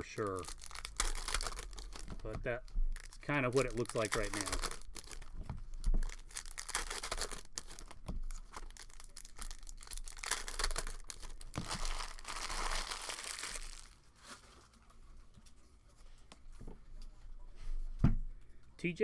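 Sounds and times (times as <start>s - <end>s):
faint rustles and taps: 0.0s - 9.6s
plastic wrapping tearing and crinkling: 0.0s - 15.0s.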